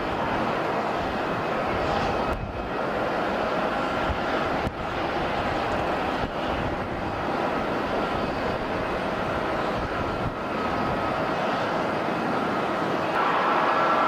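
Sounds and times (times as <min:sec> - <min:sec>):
jet engines rushing and whining: 0:00.0 - 0:14.0.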